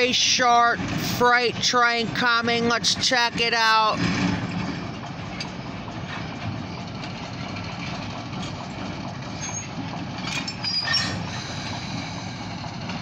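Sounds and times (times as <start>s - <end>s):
diesel locomotive rumbling past: 0.0s - 13.0s
faint high squeaks: 10.4s - 11.4s.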